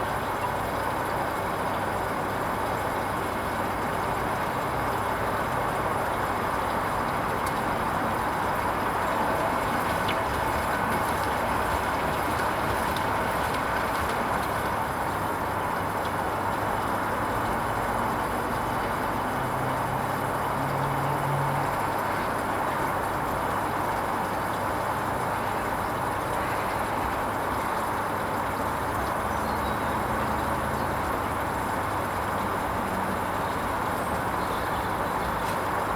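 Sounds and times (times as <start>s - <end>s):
washing machine running: 5.9s - 17.6s.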